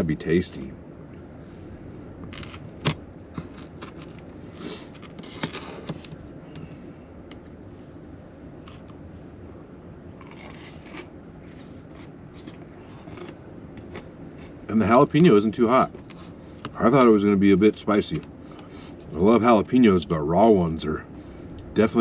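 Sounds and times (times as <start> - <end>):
low background hiss: 0.0 - 3.4, 11.0 - 22.0
chewing: 11.9 - 14.6.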